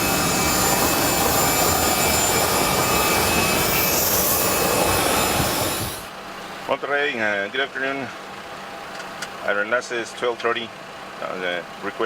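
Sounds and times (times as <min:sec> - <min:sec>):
jet turbine whining roar: 0:00.0 - 0:06.7.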